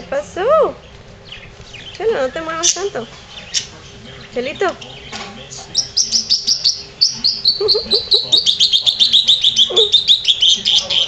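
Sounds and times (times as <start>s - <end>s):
small birds chirping: 0.0s - 11.0s
puppy whining: 9.6s - 10.2s.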